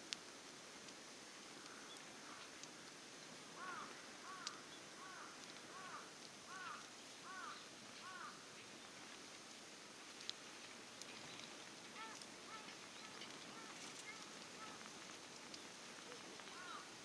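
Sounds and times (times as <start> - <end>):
faint sharp ticks: 1.6 - 3.0, 3.6 - 7.4
bird calling: 12.0 - 14.9, 16.1 - 16.9.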